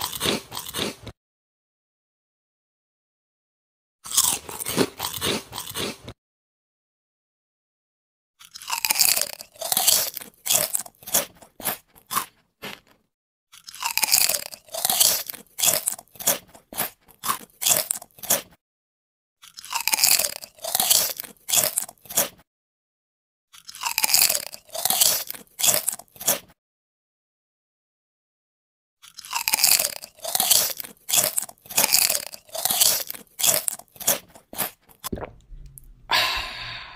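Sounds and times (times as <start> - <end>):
crunchy biting and chewing: 0.0 - 1.2, 4.0 - 6.2, 8.4 - 18.6, 19.4 - 22.5, 23.5 - 26.6, 29.0 - 36.0.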